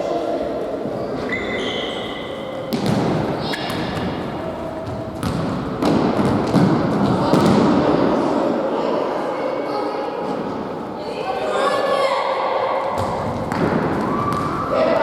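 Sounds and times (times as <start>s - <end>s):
players' voices: 0.0s - 15.0s
ball kicked and bouncing: 2.7s - 4.2s, 4.8s - 7.6s.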